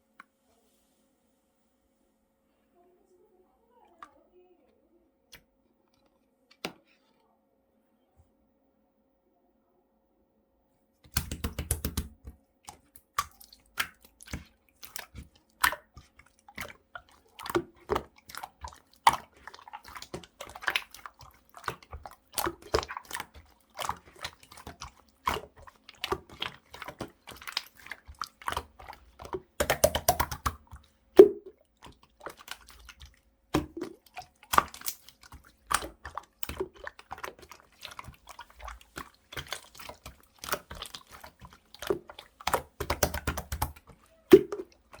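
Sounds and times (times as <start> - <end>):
slime squished by hand: 11.0 - 45.0.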